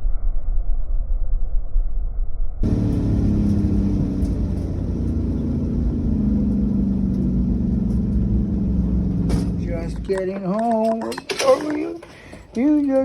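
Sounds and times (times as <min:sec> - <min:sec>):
car engine cruising: 0:02.6 - 0:12.5.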